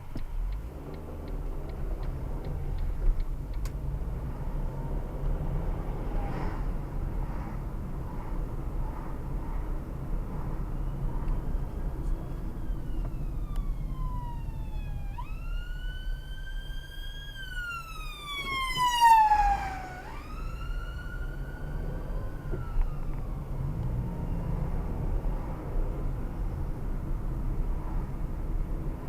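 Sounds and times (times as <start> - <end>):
low vehicle rumble: 0.0 - 29.0
emergency siren wailing: 10.6 - 26.6.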